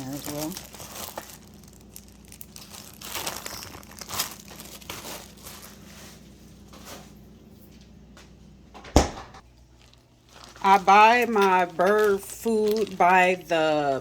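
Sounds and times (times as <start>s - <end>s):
plastic bag crinkling: 0.0s - 6.3s, 9.6s - 14.0s.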